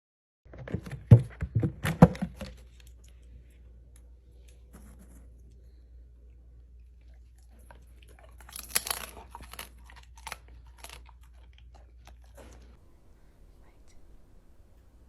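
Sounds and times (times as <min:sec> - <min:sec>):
crunchy chewing: 0:06.3 - 0:12.8.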